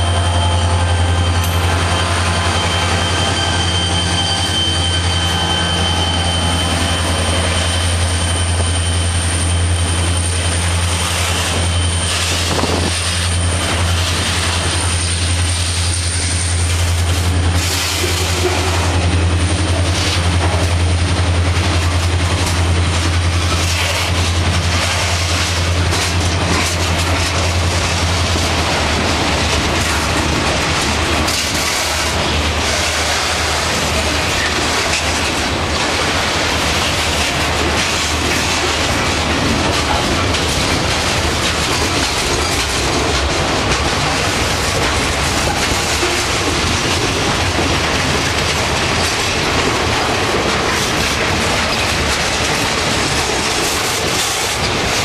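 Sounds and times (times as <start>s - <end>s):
high-pitched flange squeal: 0.0s - 13.5s
train wheels on rails: 0.0s - 55.0s.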